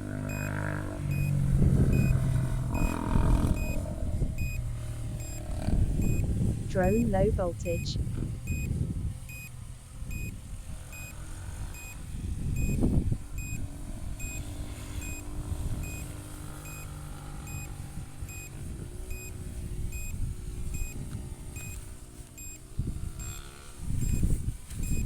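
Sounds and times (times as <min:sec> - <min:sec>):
drone motors humming: 0:00.0 - 0:25.0
wind rumble on microphone: 0:00.0 - 0:25.0
low-battery warning beeps: 0:00.3 - 0:02.2, 0:02.8 - 0:03.8, 0:04.4 - 0:09.5, 0:10.1 - 0:12.0, 0:12.6 - 0:12.8, 0:13.4 - 0:13.6, 0:14.2 - 0:15.2, 0:15.8 - 0:21.0, 0:21.6 - 0:21.8, 0:22.4 - 0:22.6, 0:24.0 - 0:25.0.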